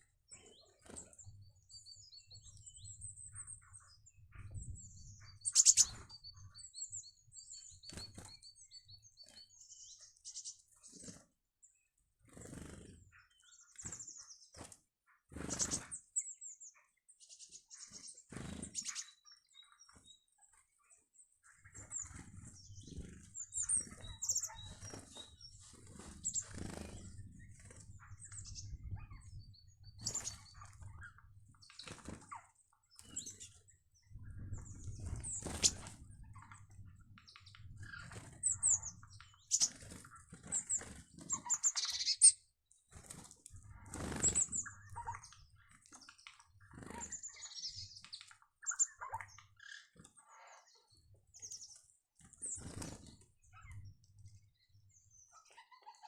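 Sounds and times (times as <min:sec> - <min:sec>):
small birds chirping: 0:00.0 - 0:56.0
wings fluttering: 0:00.4 - 0:01.3, 0:05.5 - 0:06.1, 0:07.6 - 0:08.5, 0:10.3 - 0:11.4, 0:12.2 - 0:16.0, 0:17.8 - 0:19.1, 0:21.6 - 0:50.2, 0:51.4 - 0:53.9.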